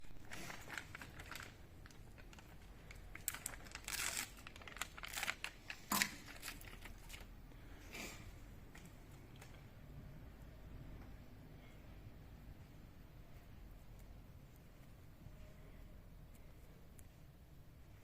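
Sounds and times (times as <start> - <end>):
crinkling and rustling: 0.0 - 7.4.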